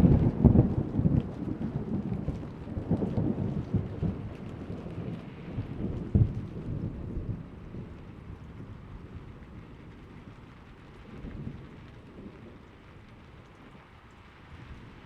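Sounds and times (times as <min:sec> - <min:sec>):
thunder cracks: 0:00.0 - 0:01.2
thunder rumbling: 0:00.0 - 0:13.0
steady rain falling: 0:00.0 - 0:15.0.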